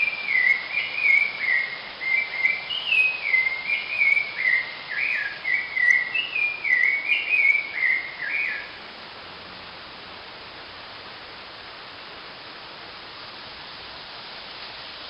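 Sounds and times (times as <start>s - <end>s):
bird whistling descending notes: 0.0s - 8.7s
falling water hiss: 0.0s - 15.0s.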